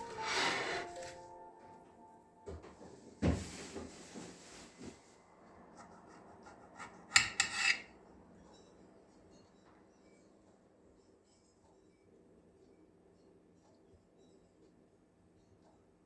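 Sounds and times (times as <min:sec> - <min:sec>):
scraping rub: 0:00.0 - 0:01.2, 0:05.8 - 0:07.9.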